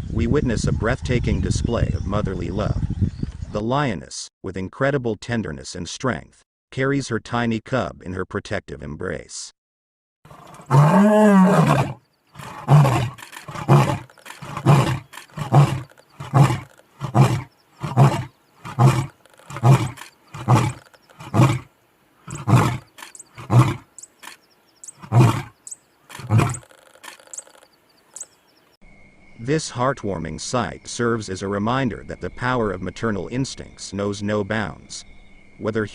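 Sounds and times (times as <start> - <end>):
lion roaring: 10.3 - 24.4, 25.0 - 27.6.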